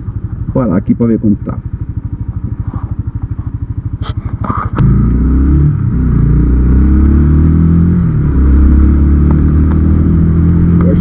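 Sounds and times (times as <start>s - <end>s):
motorcycle engine: 0.0s - 11.0s.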